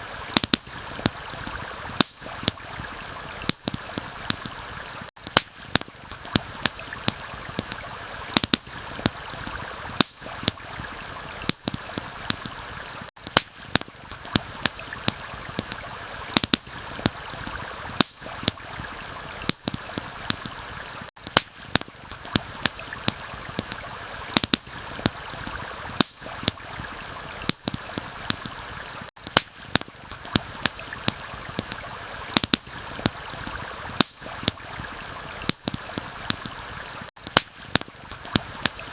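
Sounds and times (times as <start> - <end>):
stream rushing: 0.0 - 29.1, 29.7 - 37.1
campfire wood crackling: 0.0 - 38.9.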